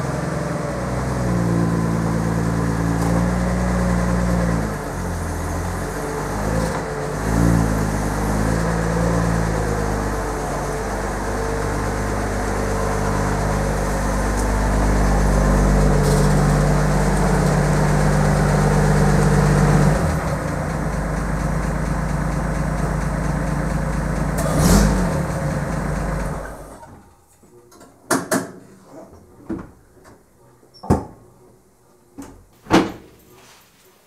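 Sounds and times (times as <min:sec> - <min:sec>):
car engine idling: 0:00.0 - 0:26.8.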